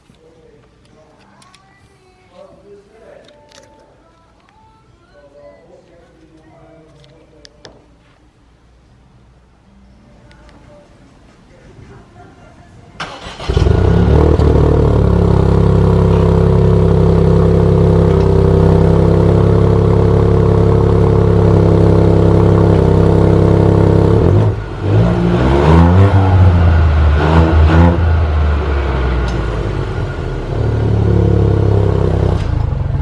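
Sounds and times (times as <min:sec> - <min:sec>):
car engine starting and idling: 0:13.0 - 0:33.0
engine revving: 0:13.1 - 0:33.0.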